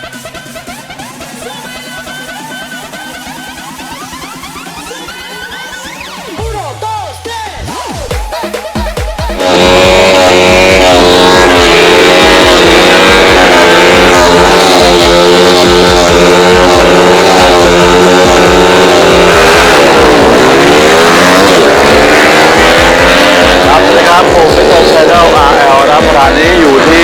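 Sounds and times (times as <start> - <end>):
motorcycle engines revving: 0.0 - 27.0.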